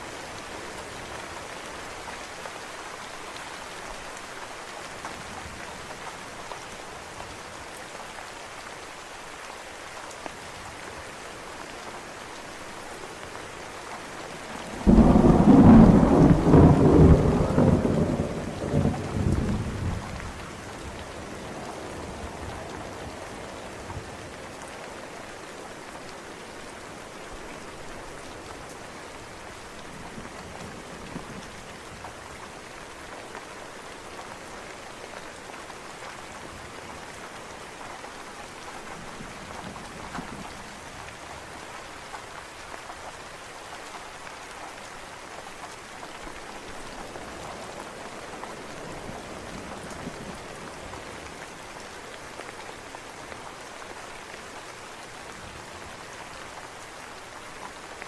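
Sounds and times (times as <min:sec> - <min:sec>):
steady rain falling: 0:00.0 - 0:58.0
thunderclap rumbling: 0:14.8 - 0:20.1.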